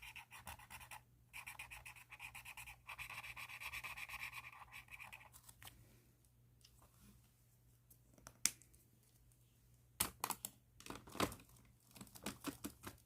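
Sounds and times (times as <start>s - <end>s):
pen scribbling on paper: 0.0s - 5.4s.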